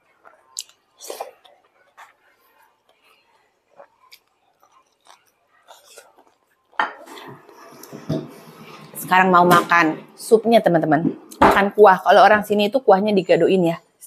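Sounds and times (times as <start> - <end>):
person chewing food: 0.0 - 9.0
mouth smacks and clicks: 0.2 - 2.2, 3.8 - 6.4.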